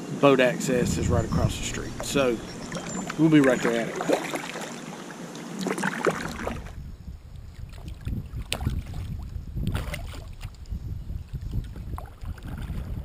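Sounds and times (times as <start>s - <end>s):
wind rumbling on microphone: 0.0s - 4.4s, 6.2s - 13.0s
water splashes: 0.6s - 6.8s, 7.6s - 10.6s.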